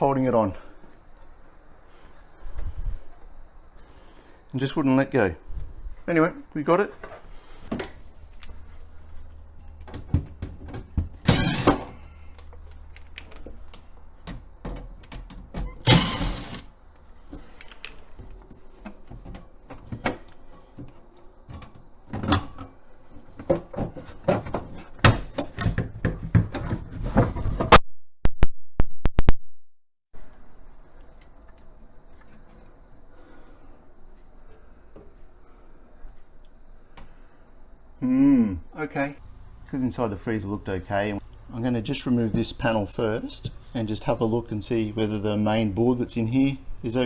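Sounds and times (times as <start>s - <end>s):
plastic parts knocking and clunking: 9.7s - 16.7s, 17.4s - 27.8s.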